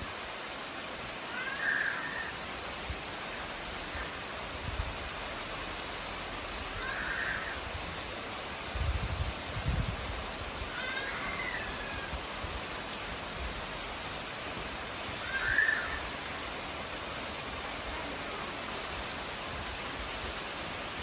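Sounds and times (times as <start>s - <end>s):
rain falling: 0.0s - 21.0s
crow cawing: 1.3s - 2.3s, 6.8s - 7.6s, 15.2s - 16.0s.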